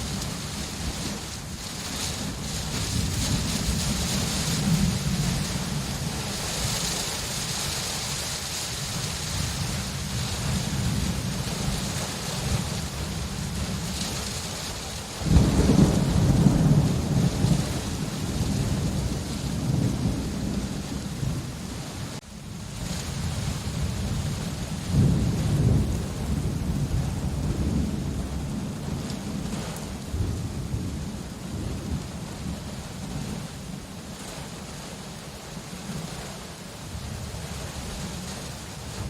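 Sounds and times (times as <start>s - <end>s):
thunder rumbling: 0.0s - 34.5s
heavy rain: 0.0s - 39.0s.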